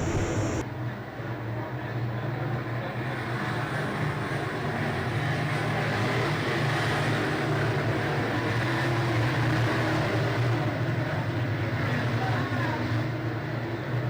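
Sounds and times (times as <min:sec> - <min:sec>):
race car engines droning: 0:00.0 - 0:00.6.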